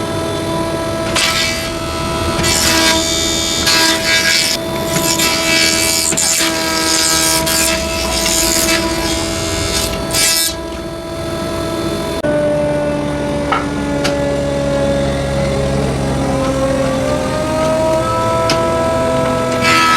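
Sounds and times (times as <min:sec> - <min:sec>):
tool cutting spinning wood: 0:00.0 - 0:12.2
lathe motor whine: 0:00.0 - 0:19.9.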